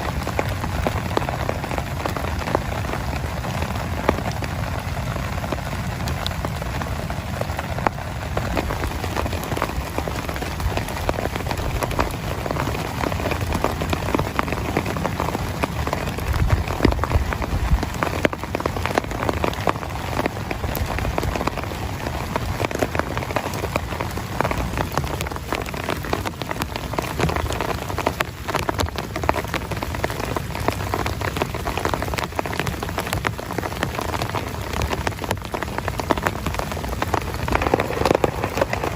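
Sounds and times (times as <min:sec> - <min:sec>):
heavy rain on a tent: 0:00.0 - 0:38.9.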